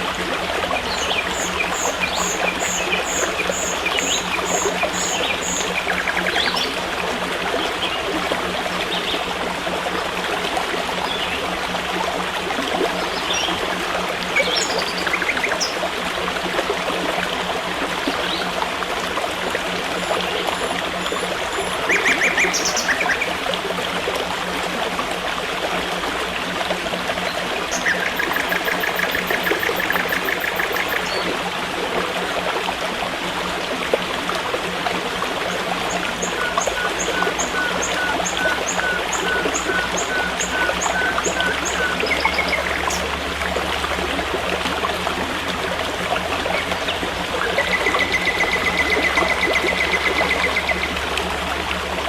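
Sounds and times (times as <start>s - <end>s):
forest stream running: 0.0s - 52.0s
birds calling: 0.8s - 6.8s, 14.3s - 15.8s, 21.0s - 23.4s, 27.7s - 31.3s.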